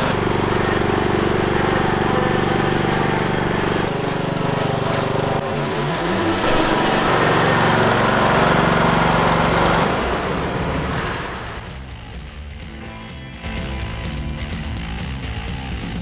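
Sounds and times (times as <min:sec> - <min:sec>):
lawn tractor engine running: 0:00.0 - 0:11.9.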